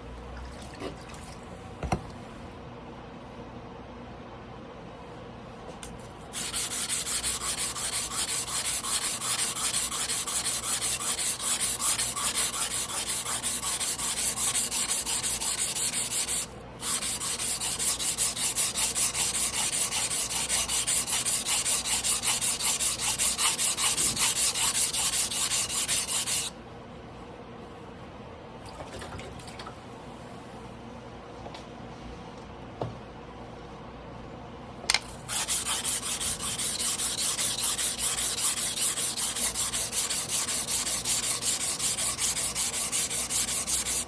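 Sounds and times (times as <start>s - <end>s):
knife scraping on whetstone: 6.3s - 26.5s, 35.2s - 44.0s.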